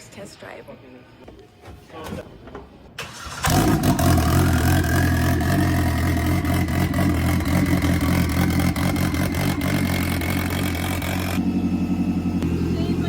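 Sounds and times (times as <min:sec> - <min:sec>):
engine running with whine: 0:03.3 - 0:13.0.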